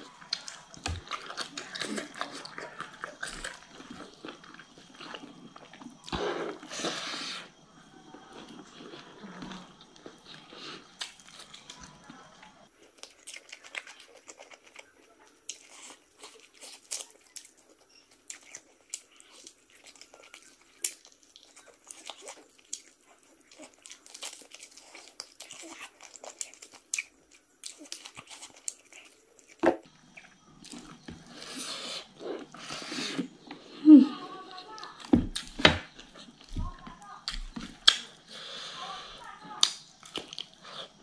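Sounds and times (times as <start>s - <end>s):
wet chewing clicks: 39.6s - 41.0s.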